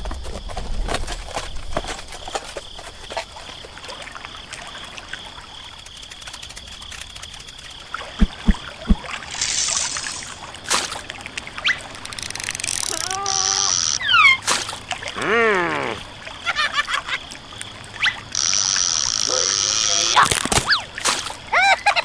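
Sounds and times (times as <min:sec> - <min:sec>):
low cartoon thumps: 0:08.2 - 0:09.1
short hiss: 0:09.3 - 0:10.4.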